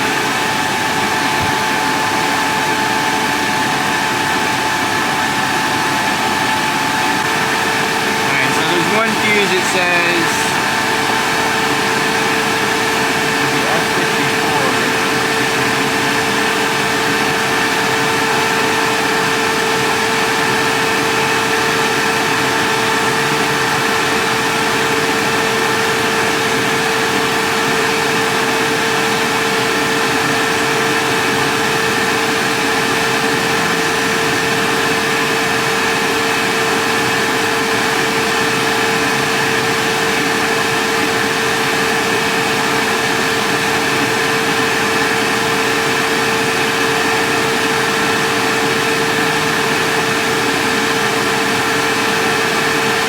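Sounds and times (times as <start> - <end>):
radiator fans whirring: 0.0 - 53.0.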